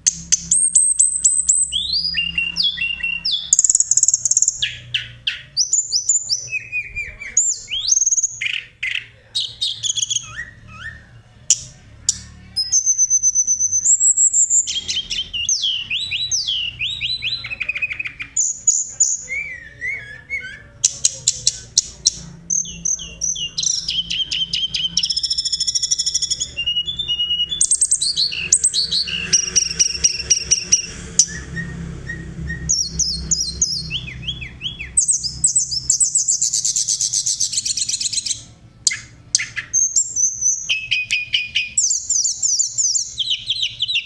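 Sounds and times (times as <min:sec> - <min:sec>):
robin singing whistled song: 0:00.0 - 0:44.0.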